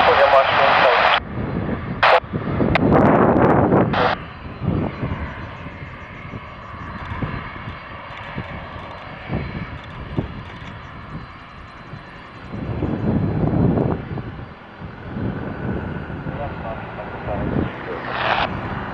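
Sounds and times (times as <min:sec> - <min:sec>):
radio crackle bursts: 0:00.0 - 0:01.2, 0:02.0 - 0:02.9, 0:03.8 - 0:12.5, 0:16.4 - 0:18.6
jet engines whining: 0:00.0 - 0:18.9.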